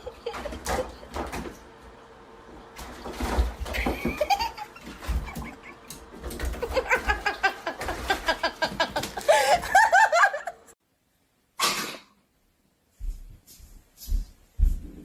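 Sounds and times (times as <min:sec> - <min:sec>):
person laughing: 0:00.0 - 0:01.2, 0:03.7 - 0:05.9, 0:06.5 - 0:10.8.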